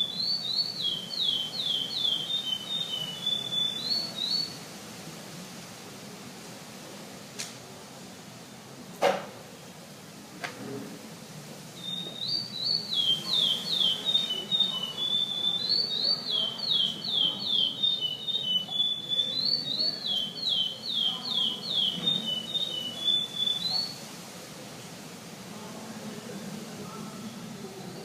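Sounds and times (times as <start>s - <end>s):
finch singing whistled notes: 0.0s - 4.6s, 11.8s - 24.0s.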